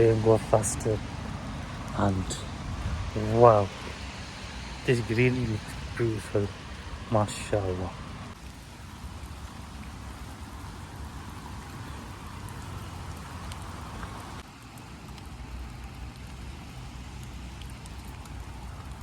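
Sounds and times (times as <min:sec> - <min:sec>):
raindrop ticks: 0:00.0 - 0:19.0
steady rain falling: 0:00.0 - 0:19.0.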